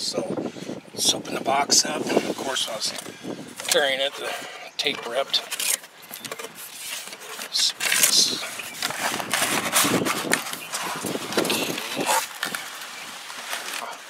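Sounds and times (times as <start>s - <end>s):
cardboard rustling and scraping: 1.8s - 14.0s.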